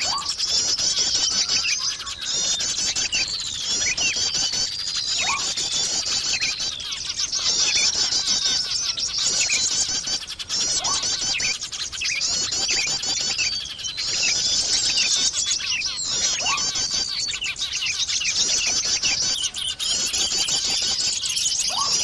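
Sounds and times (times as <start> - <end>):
recorded songbirds chirping trills: 0.0 - 22.0.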